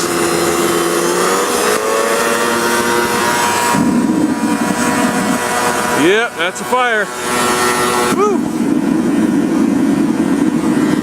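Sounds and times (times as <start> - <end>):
air rushing through burner: 0.0 - 11.0
fire flaring rumble: 0.0 - 11.0
leaf blower motor whine: 0.0 - 11.0.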